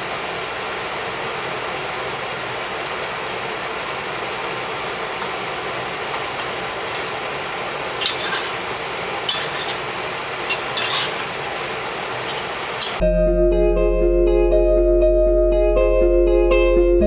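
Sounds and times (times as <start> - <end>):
stir-frying sizzle: 0.0 - 13.0
utensil scraping a pan: 6.1 - 13.0.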